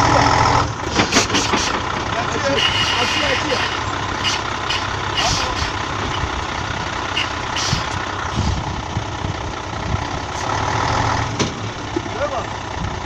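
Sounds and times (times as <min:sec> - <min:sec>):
diesel truck engine running: 0:00.0 - 0:13.0
short air hiss: 0:00.9 - 0:01.8, 0:02.6 - 0:05.9, 0:07.1 - 0:08.6.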